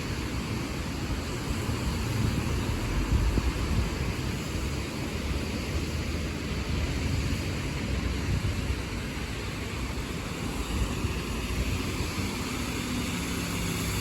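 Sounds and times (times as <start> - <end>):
buses engine rumble: 0.0 - 14.0
tyre hiss on wet road: 0.0 - 14.0
wind buffeting microphone: 0.2 - 14.0.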